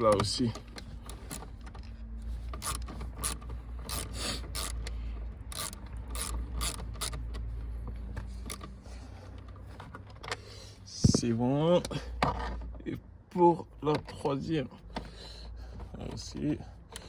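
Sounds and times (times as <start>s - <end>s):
ratchet clicking: 2.6s - 7.5s, 8.1s - 8.8s.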